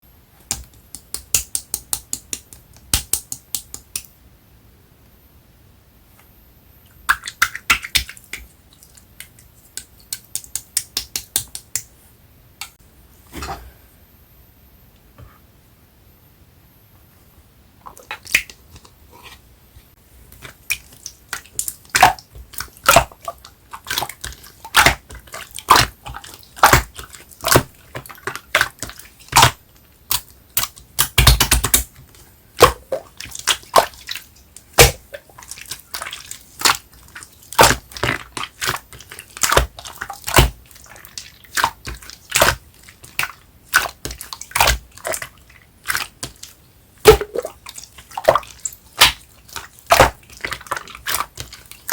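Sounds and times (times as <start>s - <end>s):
slime clicking and popping: 0.5s - 4.1s, 9.2s - 11.9s, 23.9s - 31.9s, 34.6s - 36.9s, 37.6s - 45.2s, 45.9s - 47.6s, 49.0s - 49.3s.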